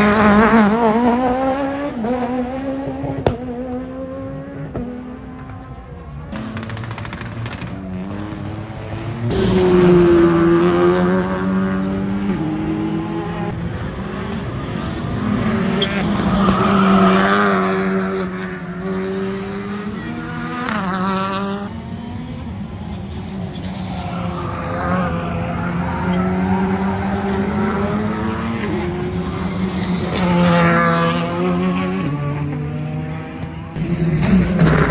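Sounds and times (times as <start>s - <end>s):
rally car engine revving: 0.0s - 34.9s.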